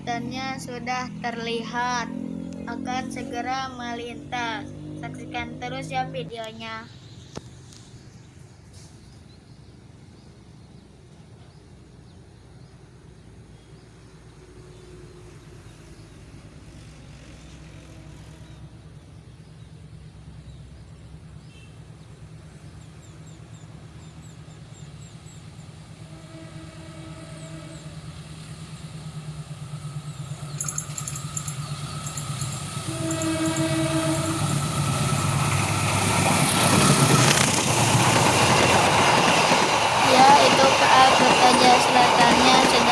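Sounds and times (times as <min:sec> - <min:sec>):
diesel train engine rumble: 0:00.0 - 0:42.9
short steady tones: 0:30.6 - 0:35.9.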